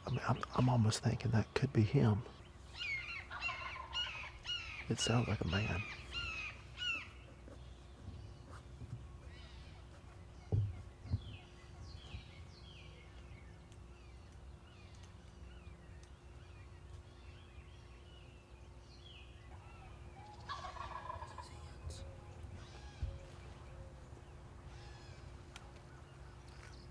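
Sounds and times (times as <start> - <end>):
small birds chirping: 0.0 - 26.9
turkey gobbling: 2.8 - 7.6, 19.5 - 21.5.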